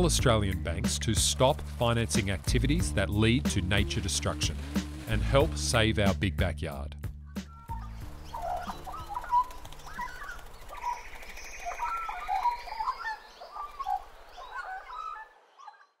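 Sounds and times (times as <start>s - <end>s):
birds calling: 0.0s - 5.9s, 7.3s - 16.0s.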